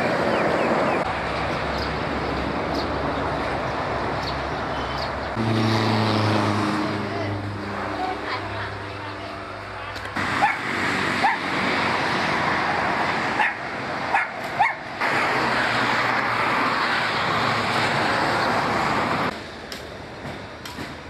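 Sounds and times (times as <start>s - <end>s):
dog yipping: 10.4s - 10.6s, 11.2s - 11.4s, 13.4s - 14.8s.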